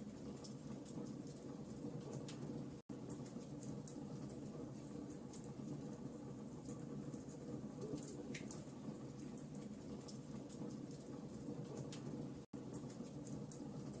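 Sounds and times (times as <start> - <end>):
low rumble of flames: 0.0 - 14.0
logs crackling and popping: 6.6 - 14.0.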